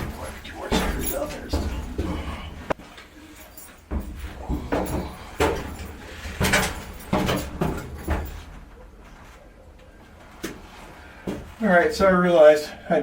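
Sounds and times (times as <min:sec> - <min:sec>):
knocks and clunks: 0:00.0 - 0:02.8, 0:03.9 - 0:08.5.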